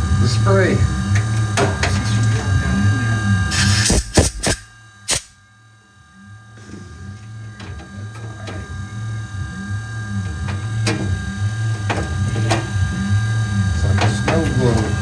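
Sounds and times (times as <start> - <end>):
milling machine humming: 0.0 - 5.2, 6.0 - 15.0
spray hissing: 3.5 - 5.2.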